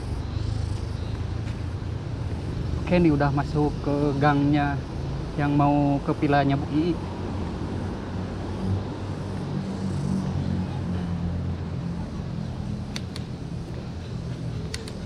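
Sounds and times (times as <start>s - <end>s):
vehicle engine with road noise: 0.0s - 15.0s
short sharp clicks: 12.9s - 13.3s.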